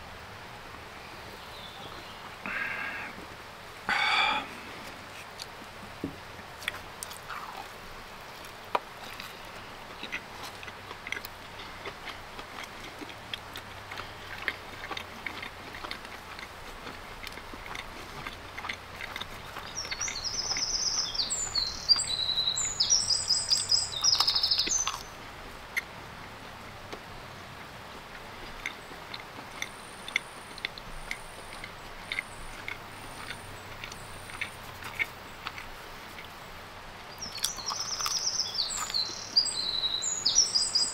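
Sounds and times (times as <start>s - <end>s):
close-up chewing: 3.9s - 40.9s
songbird trilling: 19.3s - 25.2s, 37.1s - 40.9s.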